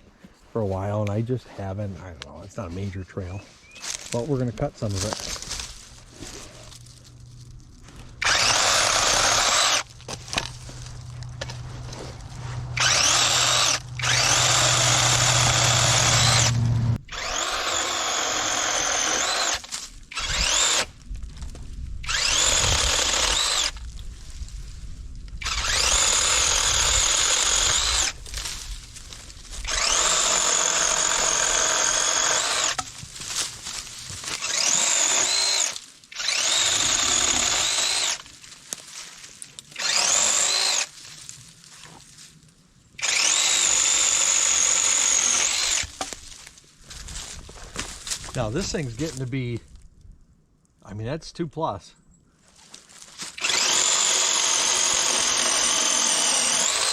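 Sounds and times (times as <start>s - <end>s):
mini chainsaw cutting branch: 4.8s - 21.0s, 22.0s - 23.9s, 25.4s - 28.7s, 29.6s - 38.3s, 39.6s - 41.0s, 43.0s - 46.3s, 53.2s - 56.9s.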